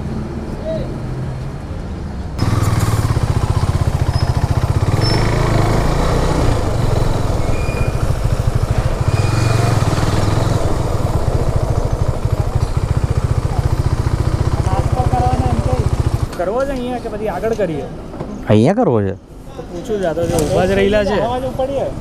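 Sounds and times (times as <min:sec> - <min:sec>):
motorcycle engine throbbing: 0:02.4 - 0:16.4.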